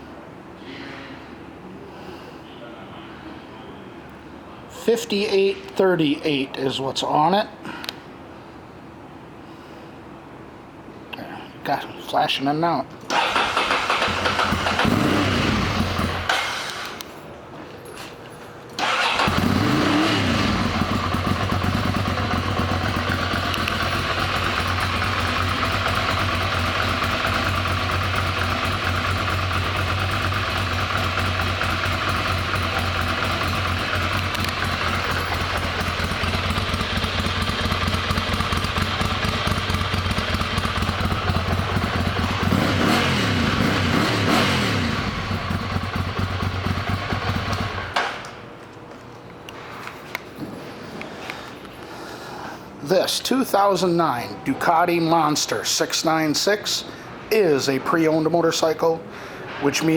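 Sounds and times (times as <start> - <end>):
motorcycle engine revving: 13.1 - 16.8, 18.8 - 48.0
motorcycle engine starting: 13.1 - 17.0, 18.8 - 48.2
motorcycle engine idling: 18.8 - 48.0.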